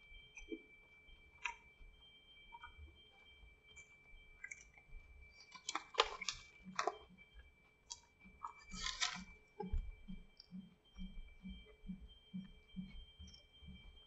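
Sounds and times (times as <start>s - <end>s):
person chewing crunchy food: 5.5s - 7.0s, 8.4s - 9.7s.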